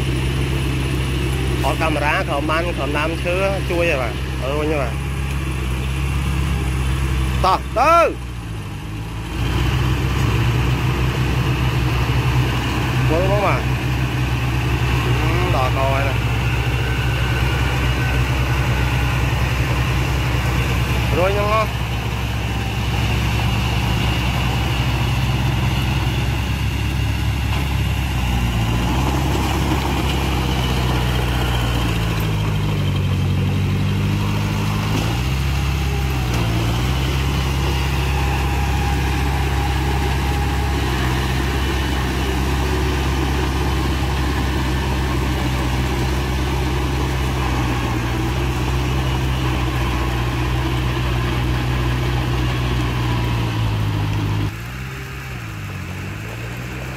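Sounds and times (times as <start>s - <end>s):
heavy diesel engine running: 0.0s - 56.9s.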